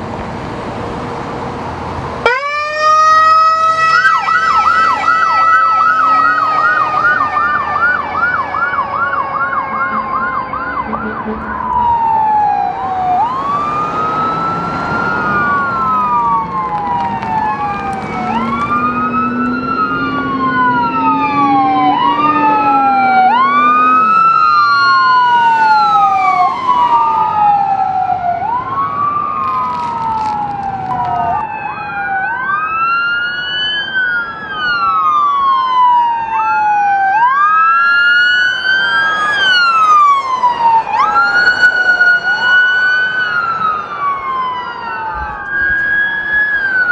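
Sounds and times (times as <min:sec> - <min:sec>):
emergency vehicle sirens wailing: 0:00.0 - 0:46.9.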